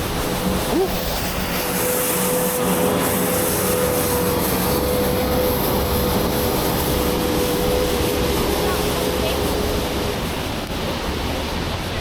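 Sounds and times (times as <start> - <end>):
city traffic rushing hiss: 0.0 - 12.0
steady traffic hum: 0.0 - 12.0.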